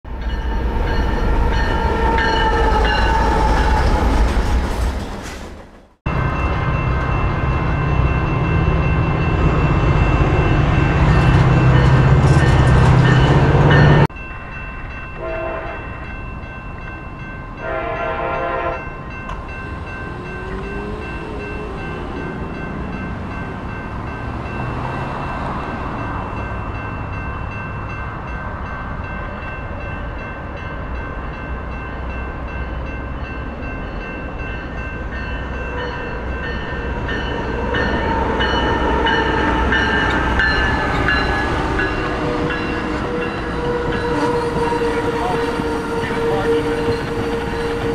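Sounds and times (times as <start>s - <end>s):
diesel locomotive running: 0.1s - 14.2s, 17.5s - 47.9s
locomotive air horn blasts: 15.2s - 15.9s, 17.6s - 18.9s.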